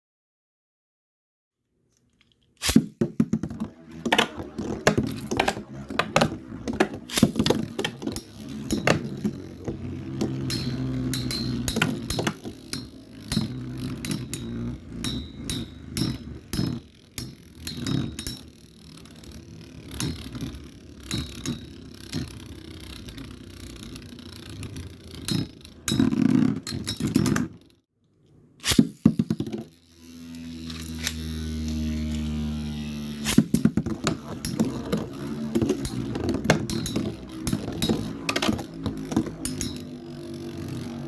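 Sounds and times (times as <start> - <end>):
spinning tops whirring: 2.6 - 27.7, 28.6 - 41.0
steady low hum: 3.5 - 26.2, 29.6 - 41.0
metal tops clacking together: 3.5 - 27.6, 33.2 - 41.0.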